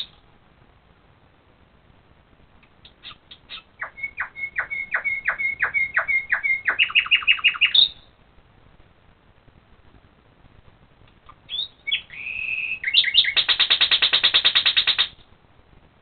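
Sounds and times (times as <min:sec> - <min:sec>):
songbird singing: 0:00.0 - 0:00.2, 0:02.6 - 0:08.2, 0:11.2 - 0:15.2.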